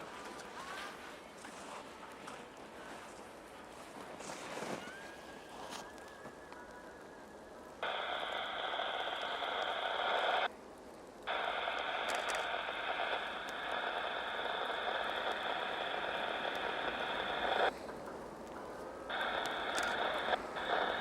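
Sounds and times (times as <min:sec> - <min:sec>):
garbled radio transmissions: 0:07.8 - 0:10.5, 0:11.3 - 0:21.0.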